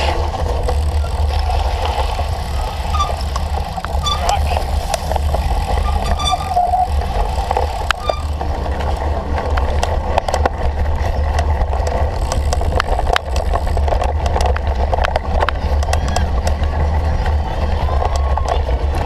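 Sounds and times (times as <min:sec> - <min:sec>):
bike clicks and rattles: 0:00.0 - 0:19.0
wind rumble on microphone: 0:00.0 - 0:19.0.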